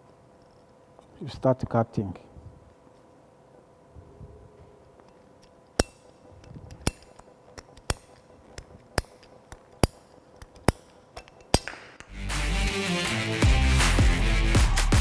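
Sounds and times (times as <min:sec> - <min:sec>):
pipe cutter clicking: 0:05.8 - 0:11.8
music: 0:12.1 - 0:15.0.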